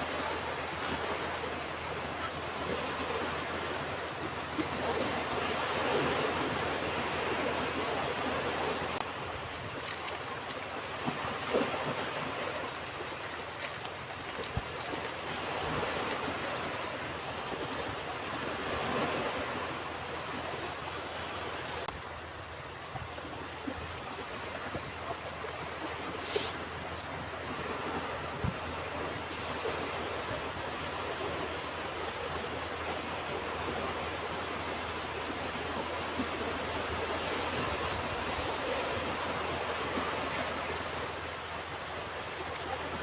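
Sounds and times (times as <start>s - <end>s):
ocean waves breaking: 26.2s - 26.6s.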